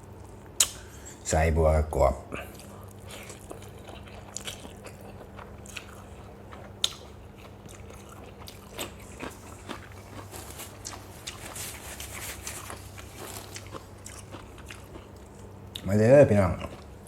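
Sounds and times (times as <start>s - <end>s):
steady low hum: 0.0s - 17.0s
crisp chewing crunches: 2.4s - 15.9s.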